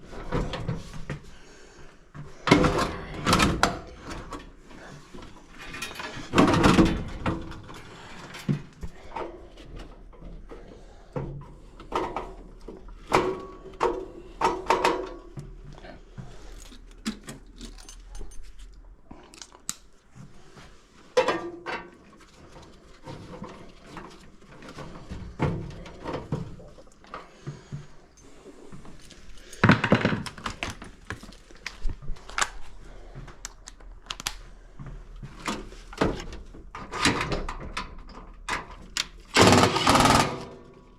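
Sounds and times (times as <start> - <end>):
knocks and clicks of tools handled: 2.2 - 20.0, 29.1 - 32.6, 33.2 - 40.7.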